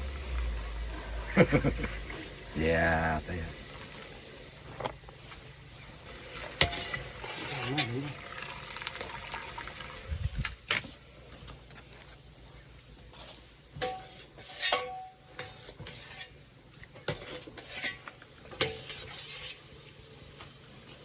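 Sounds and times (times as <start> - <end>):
dishes and utensils clinking: 13.8 - 16.4.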